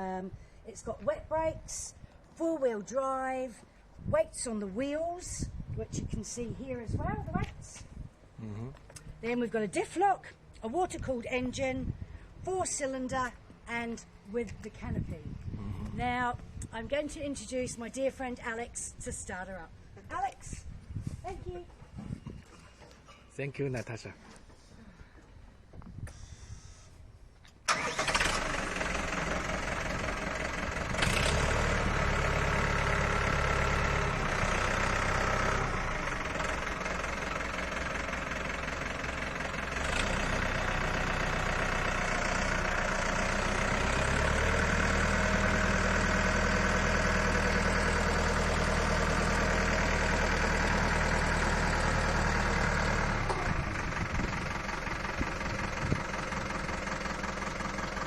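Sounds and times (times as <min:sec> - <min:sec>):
diesel tractor engine running: 0:27.7 - 0:58.0.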